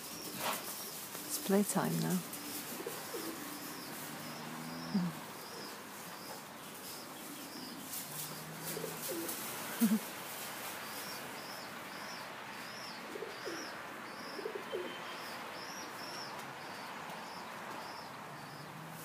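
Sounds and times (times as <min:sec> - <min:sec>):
background hiss: 0:00.0 - 0:19.0
faint low cooing: 0:02.8 - 0:05.8, 0:07.7 - 0:10.1
small bird chirping: 0:03.1 - 0:08.5.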